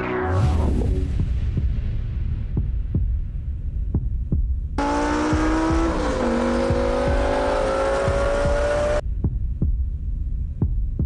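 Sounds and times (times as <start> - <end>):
low heartbeat-like thumping: 0.5 - 11.0
car engine accelerating hard: 4.8 - 9.0.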